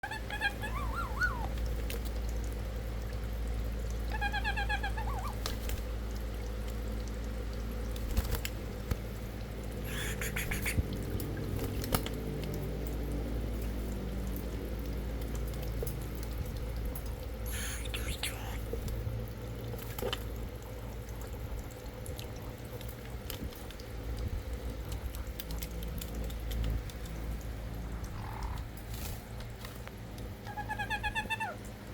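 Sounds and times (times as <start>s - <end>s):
parrot chirps: 0.0s - 1.5s, 9.8s - 10.8s, 17.5s - 18.7s, 30.5s - 31.6s
parrot calling: 0.0s - 1.6s, 4.1s - 5.4s, 9.8s - 10.9s, 17.5s - 18.7s, 30.5s - 31.6s.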